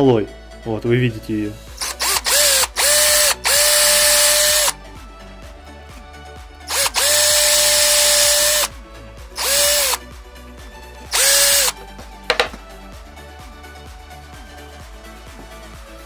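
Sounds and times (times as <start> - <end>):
power tool spinning up: 1.8 - 4.8, 6.7 - 8.7, 9.4 - 10.0, 11.1 - 12.5.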